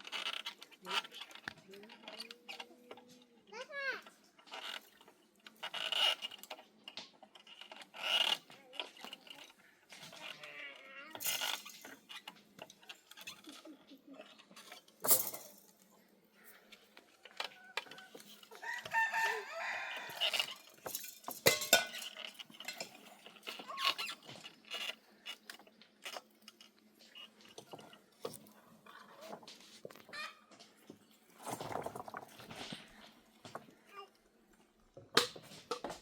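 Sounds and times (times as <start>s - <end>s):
rooster crowing: 18.6s - 20.6s
chickens clucking: 30.0s - 30.6s.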